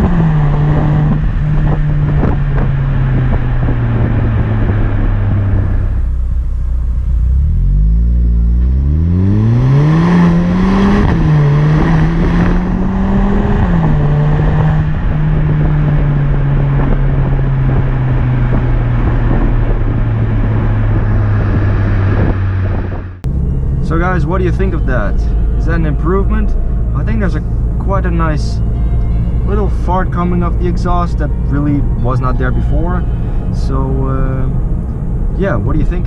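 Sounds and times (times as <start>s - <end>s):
car exhaust accelerating: 0.0s - 36.0s.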